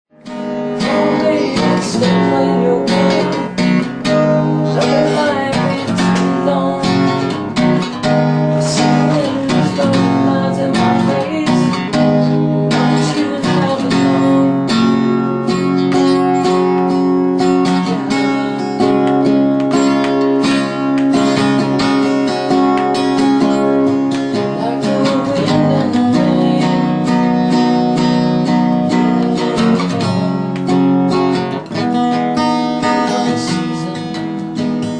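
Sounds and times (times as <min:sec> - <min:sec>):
song with strummed acoustic guitar: 0:00.1 - 0:34.9.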